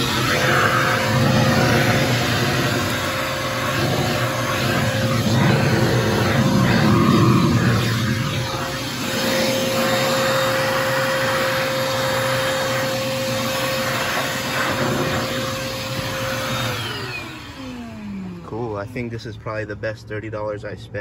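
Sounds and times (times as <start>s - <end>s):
air rushing into vacuum: 0.0s - 17.4s
vacuum motor spinning down: 0.0s - 19.1s
shop vac whining: 0.0s - 20.3s.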